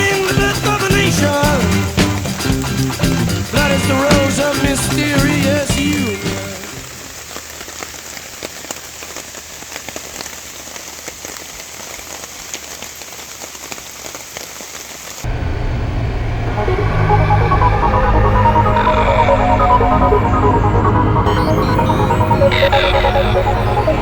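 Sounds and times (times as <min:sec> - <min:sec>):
rain pattering: 0:00.0 - 0:24.0
low steady drone: 0:15.2 - 0:24.0.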